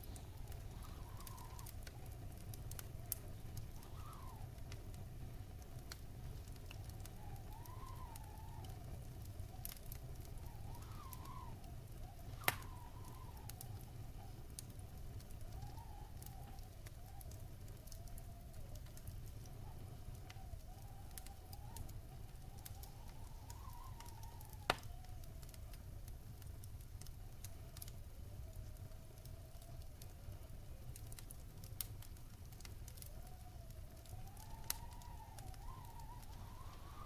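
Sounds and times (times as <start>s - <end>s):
faint wavering whistling tone: 0.0s - 4.7s, 6.3s - 25.6s, 32.9s - 37.0s
wood fire crackling: 0.0s - 37.0s.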